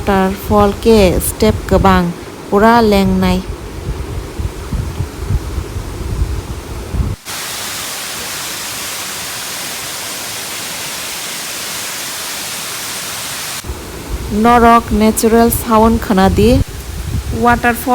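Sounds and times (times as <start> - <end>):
gusty rumbling on microphone: 0.0 - 7.2, 13.6 - 17.9
waterfall rushing: 7.2 - 15.8.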